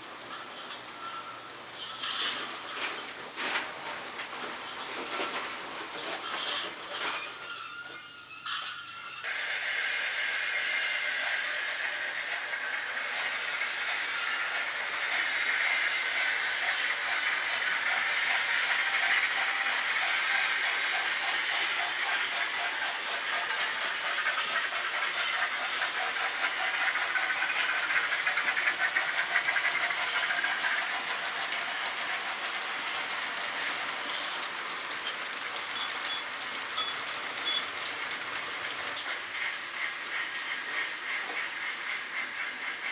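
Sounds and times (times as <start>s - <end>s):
model train motors whirring: 1.8s - 42.9s
rapid clicking from track: 10.4s - 42.9s.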